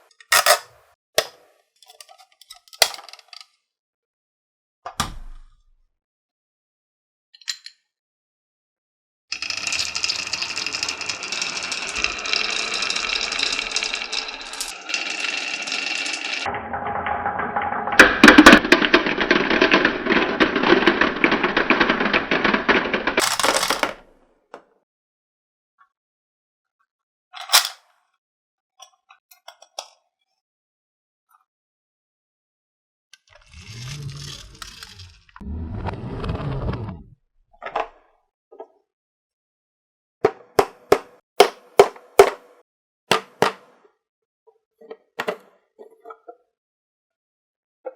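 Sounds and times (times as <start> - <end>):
marbles rolling down a marble run: 9.3 - 24.1, 33.4 - 35.4.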